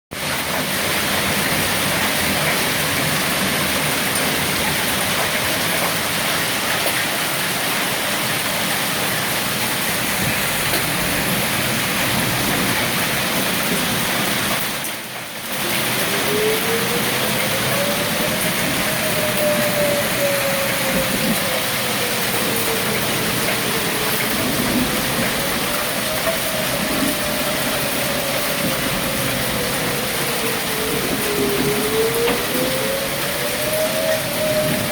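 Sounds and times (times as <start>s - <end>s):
hail and heavy rain: 0.1s - 34.9s
siren wailing: 15.5s - 34.9s.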